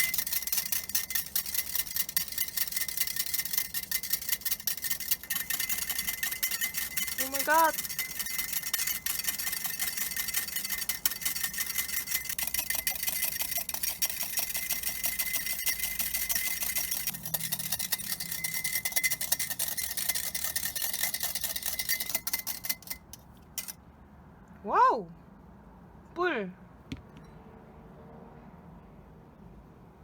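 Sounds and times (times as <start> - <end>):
whisk clicking against bowl: 0.0 - 23.8.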